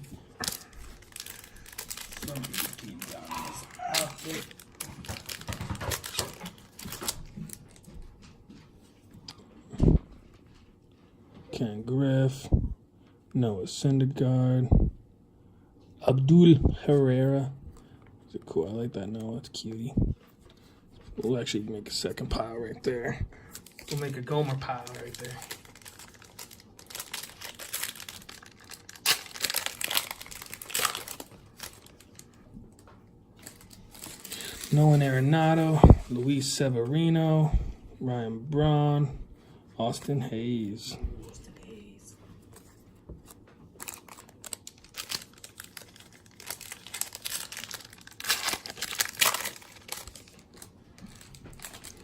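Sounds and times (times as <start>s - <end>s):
cards rustling: 0.0s - 7.5s, 23.5s - 36.4s, 42.4s - 52.0s.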